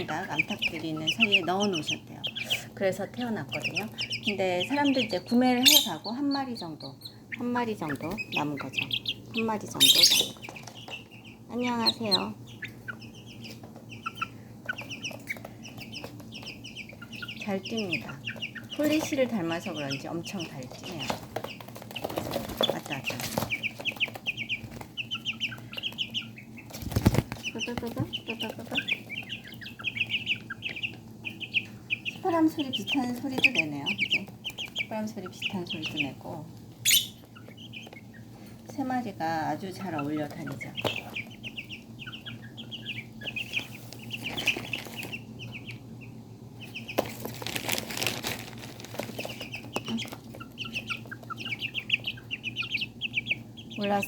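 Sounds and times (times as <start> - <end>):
chicks peeping: 0.0 - 54.0
wings fluttering: 7.8 - 35.6, 40.1 - 45.6, 46.6 - 53.3
rustling and scuffling: 25.6 - 29.3, 46.9 - 51.4.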